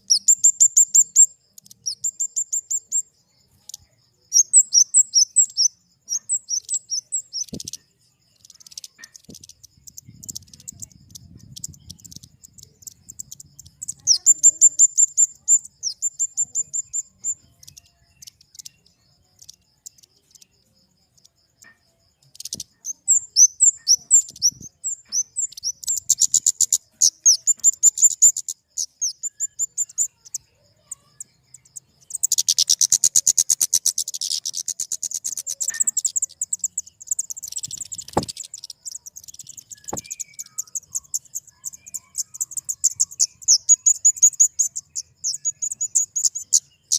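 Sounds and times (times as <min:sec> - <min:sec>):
bird high chipping calls: 0:00.0 - 0:46.9
sharp clicks: 0:37.3 - 0:40.6.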